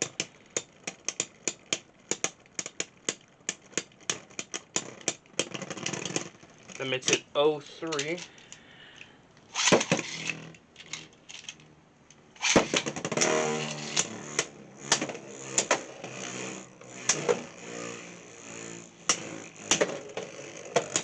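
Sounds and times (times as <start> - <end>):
spinning tops whirring: 0.0 - 8.5, 9.5 - 21.0
spinning tops clacking together: 9.5 - 11.7, 12.4 - 21.0.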